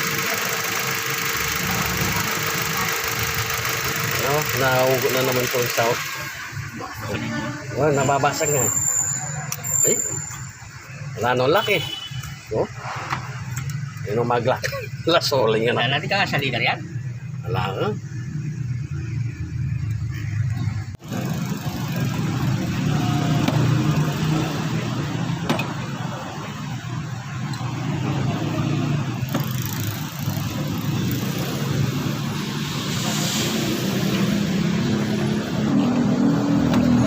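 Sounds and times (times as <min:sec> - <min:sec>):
car engine revving: 0:21.0 - 0:37.0.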